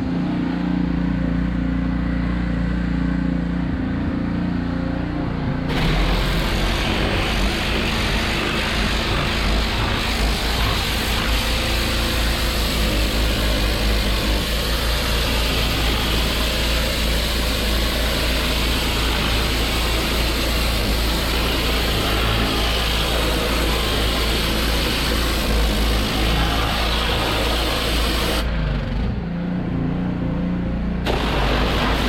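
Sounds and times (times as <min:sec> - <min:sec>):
pressure washer engine drone: 0:00.0 - 0:32.0
high-pressure water spray hiss: 0:05.7 - 0:28.5, 0:31.1 - 0:32.0.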